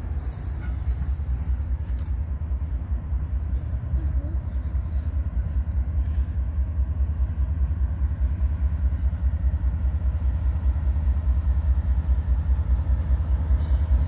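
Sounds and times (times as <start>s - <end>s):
diesel locomotive rumbling: 0.0s - 14.0s.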